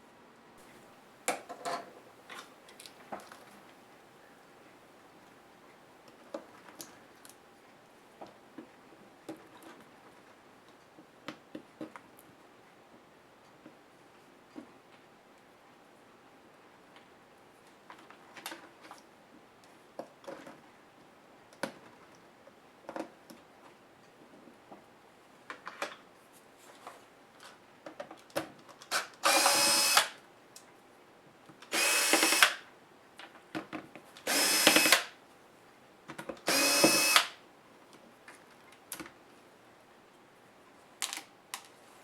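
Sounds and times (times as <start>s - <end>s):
small clicks and taps of parts: 1.3s - 3.5s, 21.5s - 24.8s, 41.0s - 41.8s
electric screwdriver running: 29.2s - 30.2s, 31.7s - 32.6s, 34.3s - 35.1s, 36.5s - 37.4s.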